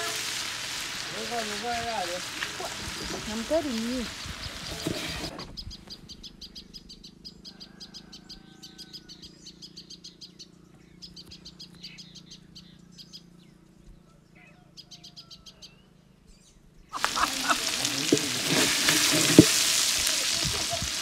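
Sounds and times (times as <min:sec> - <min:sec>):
oil sizzling: 0:00.0 - 0:05.3, 0:17.0 - 0:21.0
small birds chirping: 0:00.0 - 0:21.0.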